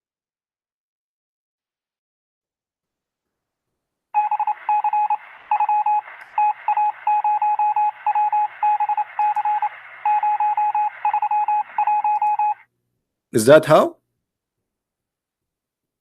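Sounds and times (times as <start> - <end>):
morse code beeps: 4.2 - 12.6
radio static hiss: 4.6 - 11.1.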